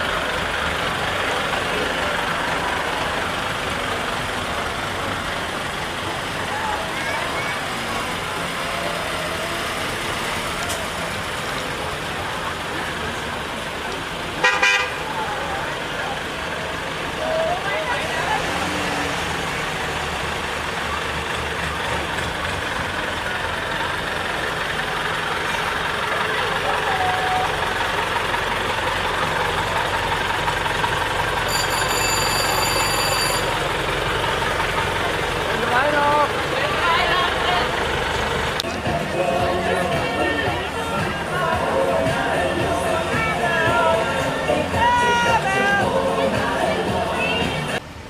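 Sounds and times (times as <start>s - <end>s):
outdoor noise: 0.0s - 48.0s
vehicles rolling past: 0.0s - 48.0s
vehicle horn toot: 14.4s - 15.2s
thin high-pitched tone: 31.5s - 33.6s.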